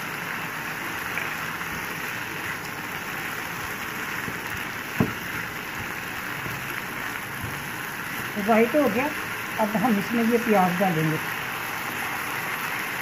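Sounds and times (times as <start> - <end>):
food sizzling in frying pan: 0.0 - 13.0
sharp knock: 5.0 - 5.3.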